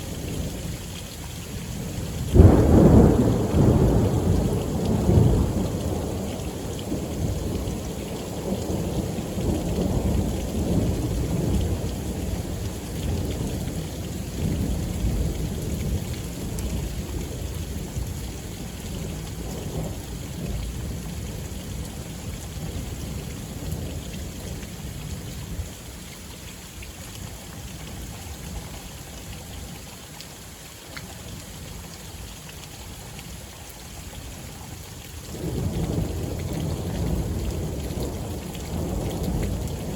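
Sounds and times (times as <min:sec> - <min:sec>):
steady rain falling: 0:00.0 - 0:39.9
thunder rumbling: 0:02.2 - 0:17.3.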